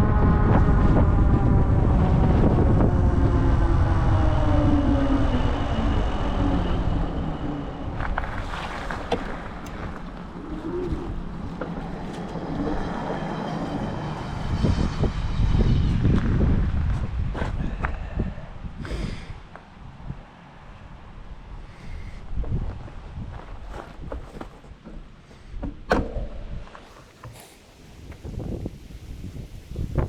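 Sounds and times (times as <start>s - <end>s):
e-bike motor whine: 0.0s - 19.0s, 26.9s - 30.0s
wind rumbling on microphone: 0.0s - 30.0s.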